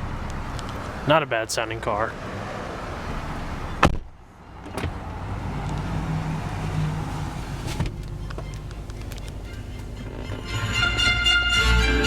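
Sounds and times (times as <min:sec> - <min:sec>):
car engine idling: 0:03.1 - 0:11.4.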